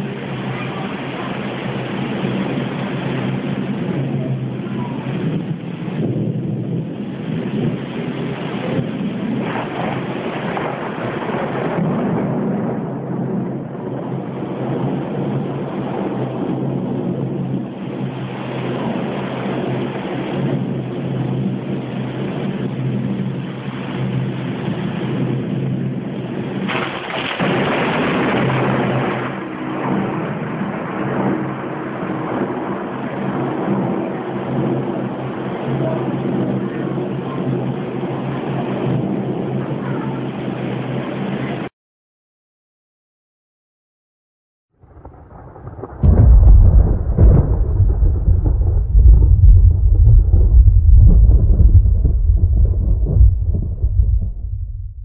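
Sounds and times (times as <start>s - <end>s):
thunder rumbling: 0.0s - 41.6s, 44.8s - 55.0s
steady rain: 0.0s - 41.7s, 44.8s - 55.0s
loud thunder clap: 5.2s - 17.0s, 26.5s - 35.8s, 44.8s - 55.0s.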